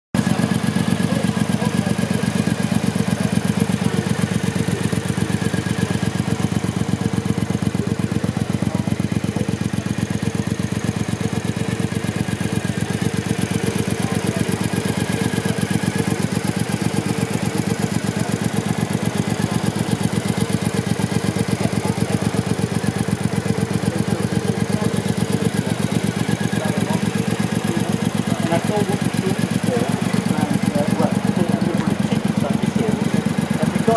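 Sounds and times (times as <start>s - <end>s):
motorcycle engine idling: 0.2s - 33.9s.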